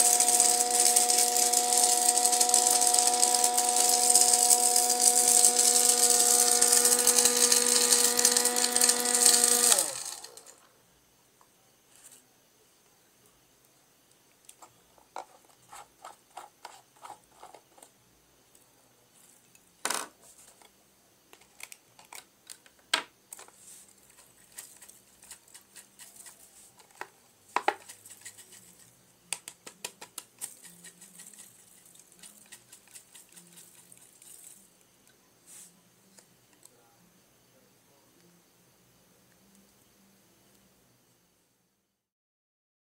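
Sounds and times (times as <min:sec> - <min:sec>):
small hard objects clicking: 0:00.0 - 0:10.6, 0:21.4 - 0:34.6.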